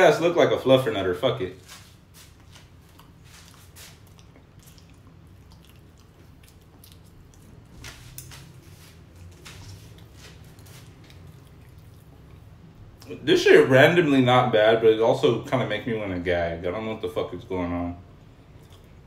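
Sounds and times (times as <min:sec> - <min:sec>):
faint mouth clicks of chewing: 0:02.9 - 0:08.4, 0:09.9 - 0:13.1, 0:18.5 - 0:19.0.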